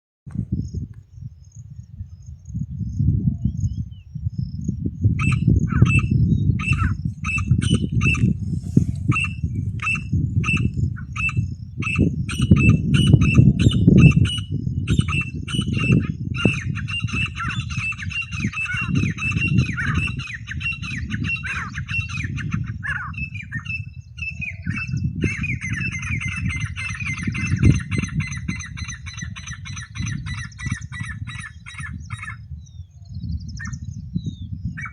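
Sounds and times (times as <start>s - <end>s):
birds calling sharp notes: 5.2s - 34.0s
heavy low rumble: 5.7s - 13.3s.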